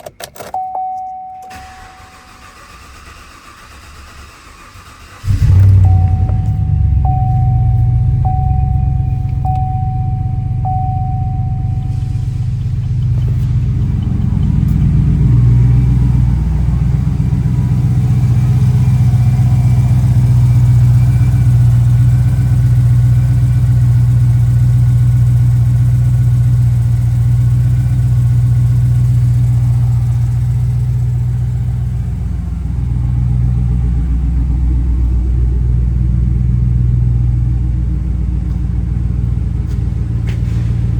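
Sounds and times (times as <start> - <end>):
dashboard warning chime: 0.2 - 2.6, 5.3 - 17.3
truck engine idling: 1.5 - 40.9.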